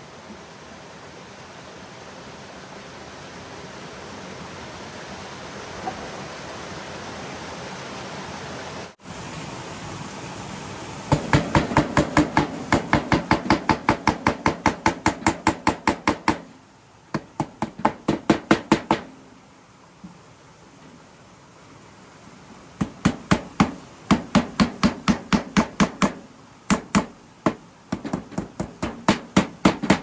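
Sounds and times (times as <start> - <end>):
rushing hiss: 0.0 - 30.0
rapid hammer strikes: 11.1 - 16.5, 17.1 - 19.2, 22.8 - 30.0.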